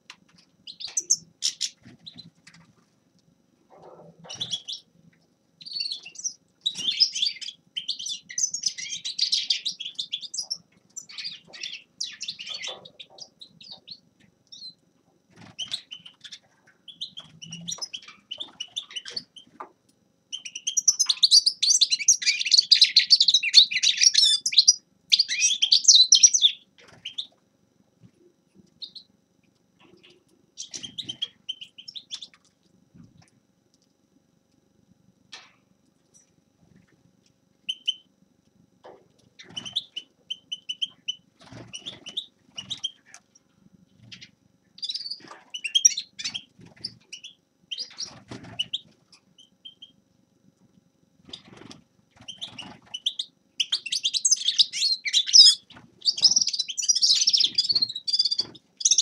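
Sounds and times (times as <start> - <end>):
finch twittering song: 0.7 - 2.3, 4.3 - 4.9, 5.6 - 14.8, 20.3 - 27.3, 37.7 - 38.0, 44.0 - 48.8, 52.3 - 59.0.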